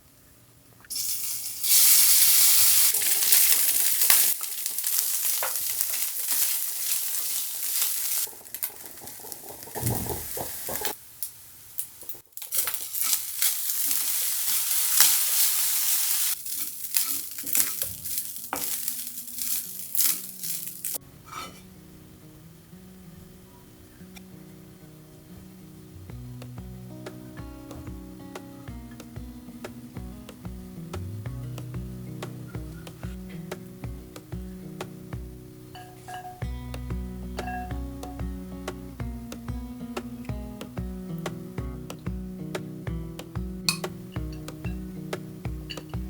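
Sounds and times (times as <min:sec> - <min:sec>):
food sizzling in hot oil: 0:00.9 - 0:21.6
stirring clicks and scrapes: 0:02.9 - 0:11.0, 0:16.3 - 0:21.6.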